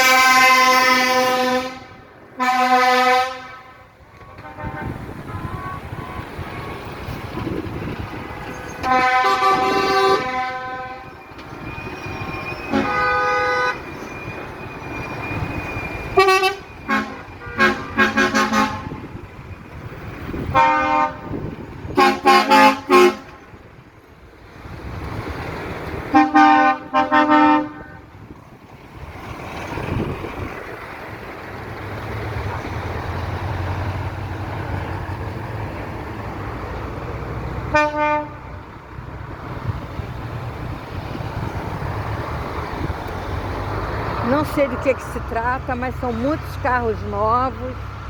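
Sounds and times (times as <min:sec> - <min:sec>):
vehicle horns honking: 0:00.0 - 0:13.9, 0:15.5 - 0:19.2, 0:20.4 - 0:23.6, 0:26.1 - 0:28.1, 0:37.7 - 0:38.6
traffic rumble: 0:00.0 - 0:48.0.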